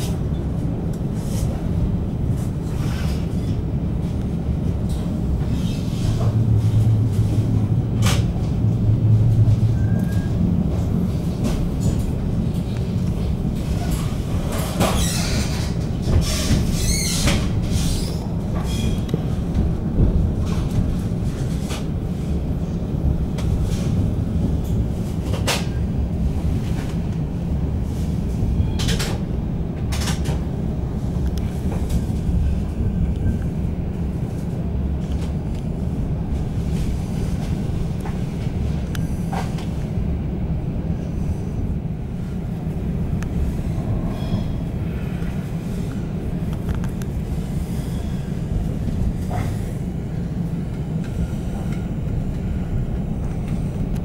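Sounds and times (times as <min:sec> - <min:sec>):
train carriage low rumble: 0:00.0 - 0:54.0
wavering wheel squeal: 0:09.6 - 0:10.4.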